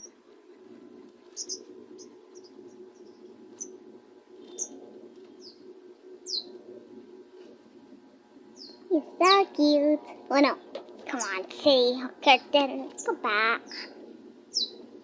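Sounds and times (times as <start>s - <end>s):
small bird chirping: 0.0s - 0.2s, 1.3s - 3.8s, 4.4s - 5.6s, 6.2s - 6.5s, 8.6s - 8.9s, 11.1s - 13.9s, 14.5s - 14.8s
steady low hum: 0.0s - 15.0s.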